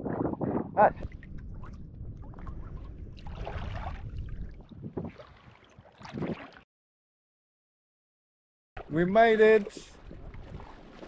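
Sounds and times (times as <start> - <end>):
wind rumble on microphone: 0.0 - 6.4, 9.9 - 10.9
water splashing around kayak: 1.0 - 6.7, 8.8 - 11.0.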